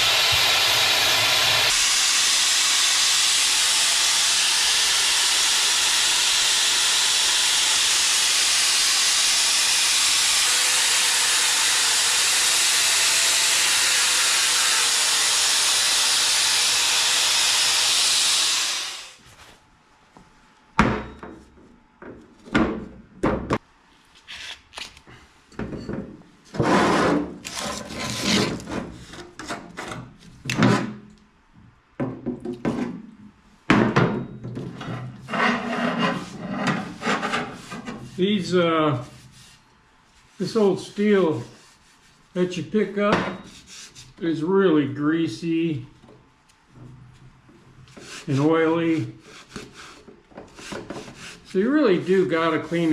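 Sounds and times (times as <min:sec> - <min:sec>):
loud steady hiss: 0:00.0 - 0:19.2
scrubbing scrap steel: 0:34.8 - 0:39.1.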